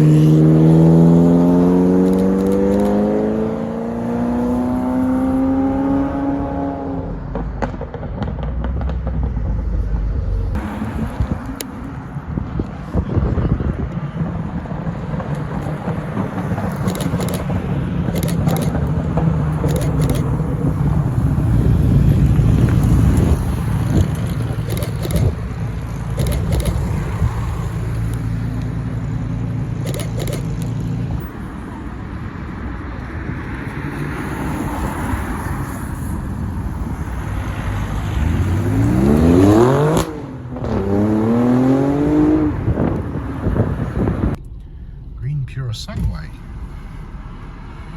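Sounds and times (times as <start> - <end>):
car accelerating hard: 0.0 - 11.6, 37.4 - 47.9
car engines low rumble: 0.0 - 47.9.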